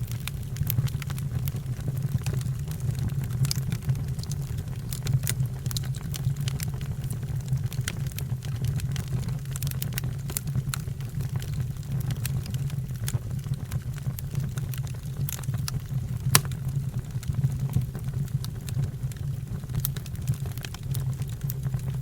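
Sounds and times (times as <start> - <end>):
fire crackling and popping: 16.3 - 16.6.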